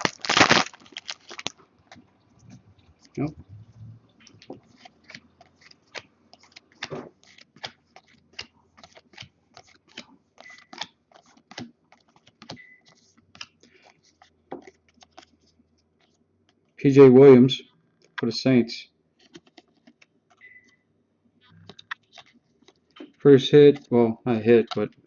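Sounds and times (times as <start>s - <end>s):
trading cards flipped by hand: 4.2s - 16.2s, 19.2s - 20.4s, 21.5s - 23.1s.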